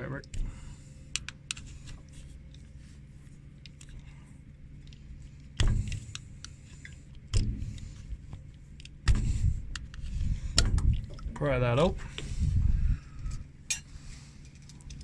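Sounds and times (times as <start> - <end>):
steady low hum: 0.0 - 15.0
heavy thumps: 9.0 - 9.7.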